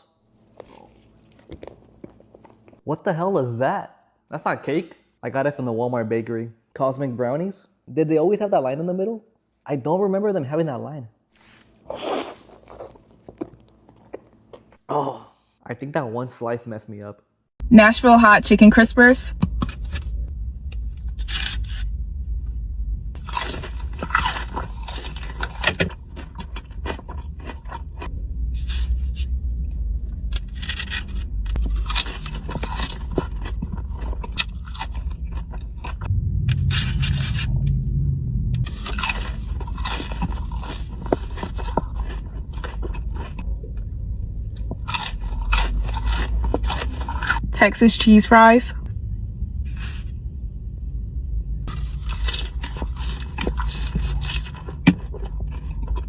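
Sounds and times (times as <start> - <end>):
crunching and chewing fried chicken: 0.4 - 2.8, 11.4 - 14.8, 21.0 - 21.8, 23.2 - 37.6, 38.6 - 47.5, 51.7 - 56.0.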